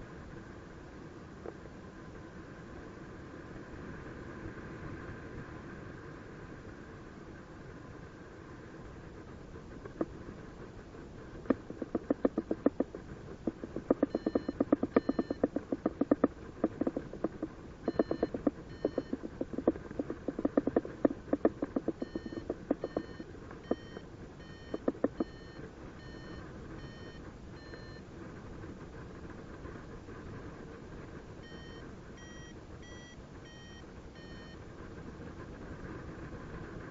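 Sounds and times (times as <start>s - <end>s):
variometer beeping in fast pulses: 11.4s - 28.0s, 31.4s - 34.6s
higher thin beep: 13.9s - 15.5s, 17.9s - 19.2s, 22.0s - 27.2s.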